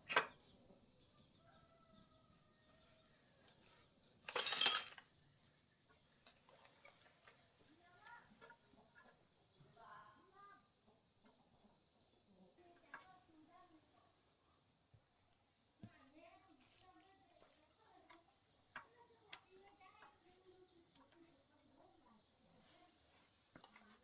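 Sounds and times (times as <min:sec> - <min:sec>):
metallic clatter: 0:04.3 - 0:05.0.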